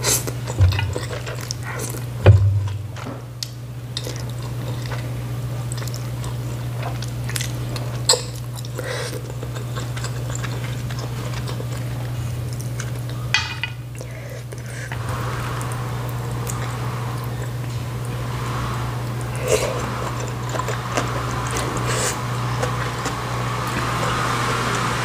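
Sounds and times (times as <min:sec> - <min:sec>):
chewing noodles: 0:00.0 - 0:02.2, 0:03.9 - 0:13.3, 0:19.0 - 0:25.0
steady low hum: 0:00.0 - 0:25.0.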